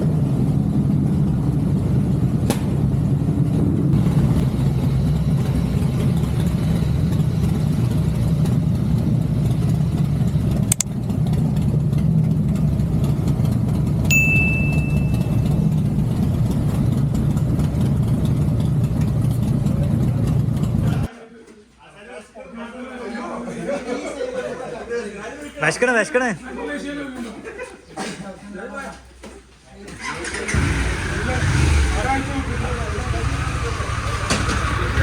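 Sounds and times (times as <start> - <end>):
motorcycle engine running: 0.0 - 21.1, 30.0 - 35.0
sharp click: 10.7 - 10.9
short high beep: 14.1 - 15.7.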